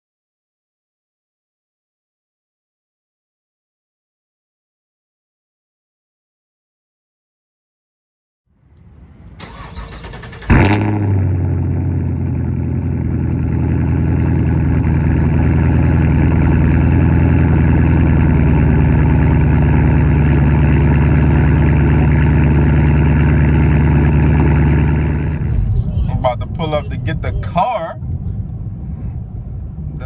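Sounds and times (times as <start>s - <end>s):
car starter cranking: 9.4s - 11.6s
engine revving then idling: 9.4s - 27.7s.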